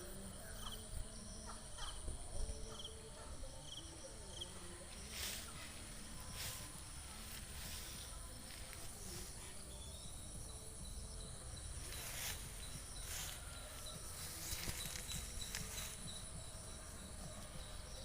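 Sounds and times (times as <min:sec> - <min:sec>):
high-pitched insect drone: 0:03.7 - 0:18.0.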